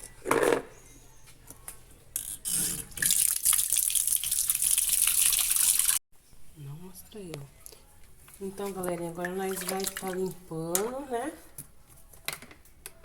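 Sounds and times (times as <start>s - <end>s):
water running: 2.8s - 6.0s, 8.5s - 11.1s.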